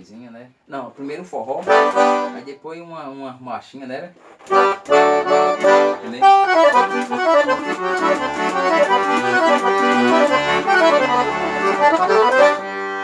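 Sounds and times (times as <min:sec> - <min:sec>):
accordion playing lively tune: 0:01.6 - 0:02.5, 0:04.4 - 0:13.0.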